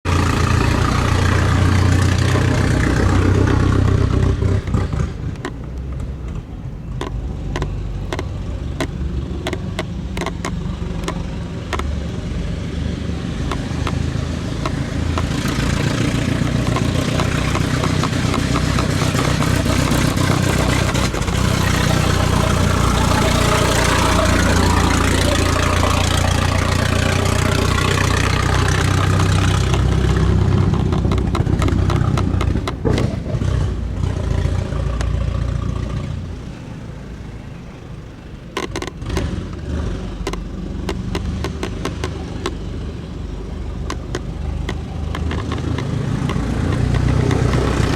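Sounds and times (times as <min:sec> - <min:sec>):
car engine running: 0:00.0 - 0:47.9
sharp clicks: 0:04.6 - 0:12.5, 0:13.3 - 0:33.6, 0:38.5 - 0:47.9.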